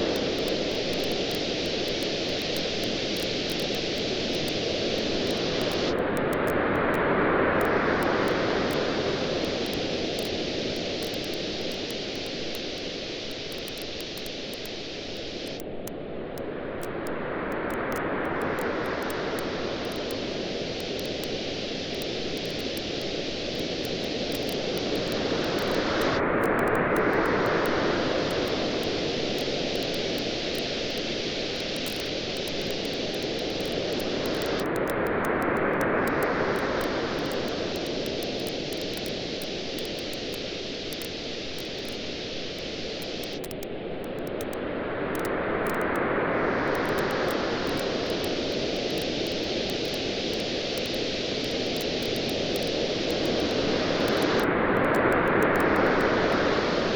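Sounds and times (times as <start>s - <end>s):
campfire crackling and popping: 0.0s - 6.4s, 9.4s - 15.8s, 17.7s - 35.1s, 35.8s - 44.6s, 46.8s - 54.5s
ocean waves on a beach: 17.2s - 44.0s, 44.6s - 56.9s.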